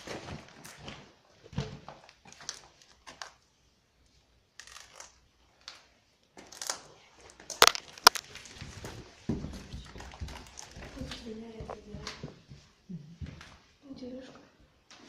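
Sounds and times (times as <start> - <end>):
footsteps crunching on debris: 7.6 - 8.4.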